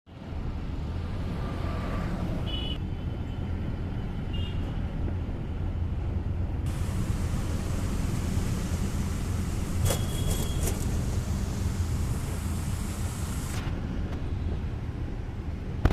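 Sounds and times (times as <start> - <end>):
vehicle engine and road noise: 0.1 - 15.9
hiss: 6.7 - 13.7.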